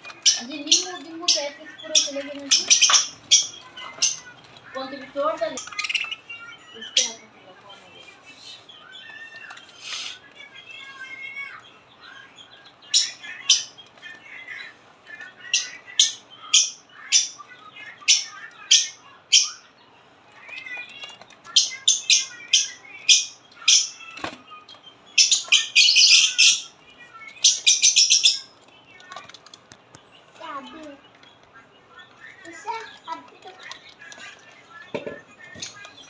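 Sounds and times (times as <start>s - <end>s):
soft warbling bird chatter: 0.0s - 36.0s
shrill bird chirps: 15.5s - 29.0s.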